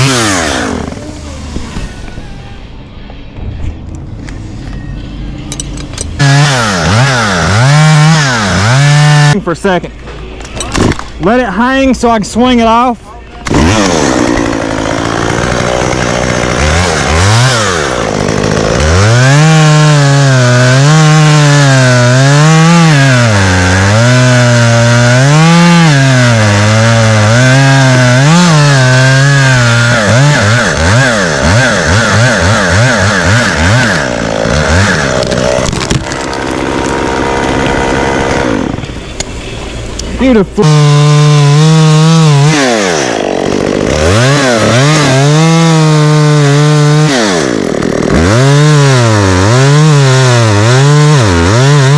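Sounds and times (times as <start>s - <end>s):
chainsaw cutting wood: 0.0s - 1.0s, 5.5s - 9.4s, 13.4s - 39.0s, 40.6s - 51.9s
chainsaw throttle blips: 6.2s - 9.4s, 13.4s - 38.8s, 40.6s - 51.9s.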